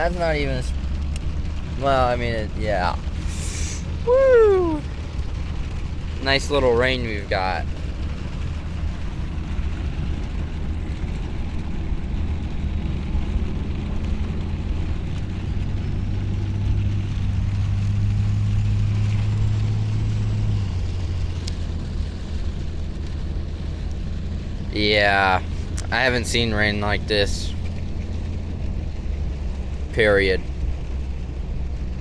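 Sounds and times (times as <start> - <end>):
rain and tyres hiss: 0.0 - 32.0
truck engine hum: 0.0 - 32.0
sharp tick: 1.1 - 1.3.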